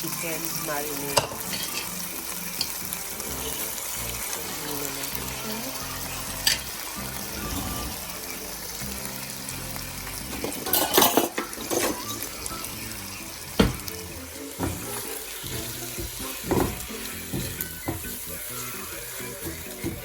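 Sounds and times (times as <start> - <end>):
chicken sizzling in oil: 0.0 - 20.0
utensil scraping a pan: 1.1 - 2.8, 10.3 - 12.6.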